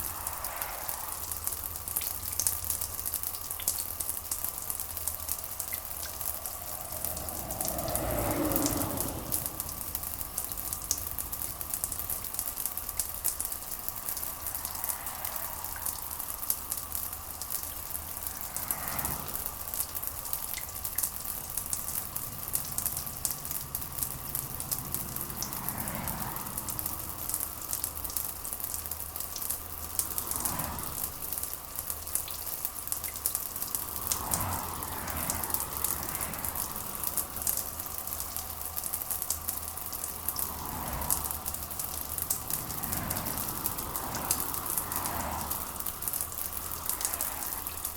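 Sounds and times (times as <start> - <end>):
steady rain pattering: 0.0 - 47.9.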